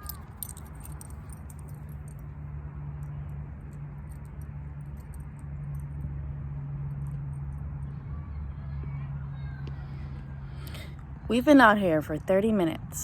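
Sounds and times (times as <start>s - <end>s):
leash clasp and tags jingling: 0.0s - 2.2s
steady low hum: 0.0s - 13.0s.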